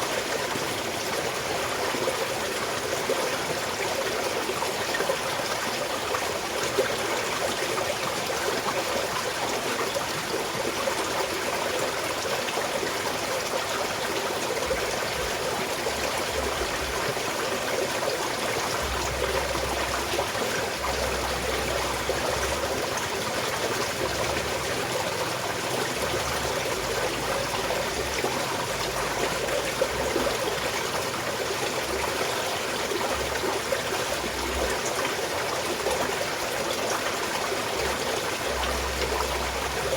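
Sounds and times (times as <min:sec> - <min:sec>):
stream flowing over rocks: 0:00.0 - 0:39.9
faint low rumble: 0:18.6 - 0:34.8, 0:37.7 - 0:39.9.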